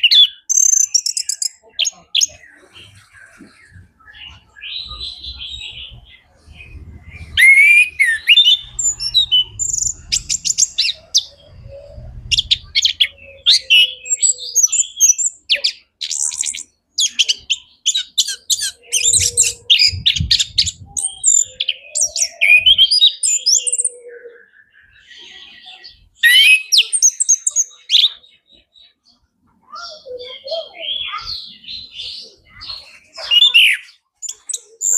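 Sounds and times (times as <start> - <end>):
thrush singing: 2.3 - 14.2.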